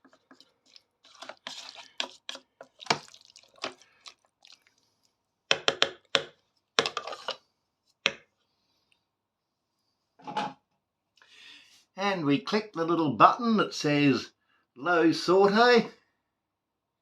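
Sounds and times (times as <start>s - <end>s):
wet stirring of thick curry: 0.0s - 8.9s
stirrer knocking against pot: 5.5s - 7.1s.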